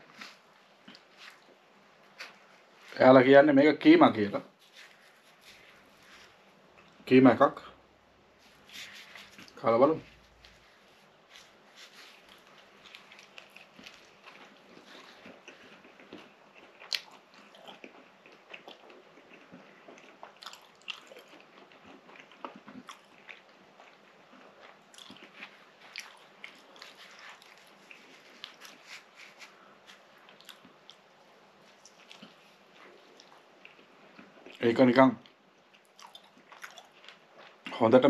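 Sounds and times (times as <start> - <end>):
person biting and chewing pastry: 8.5 - 34.6, 35.6 - 37.7.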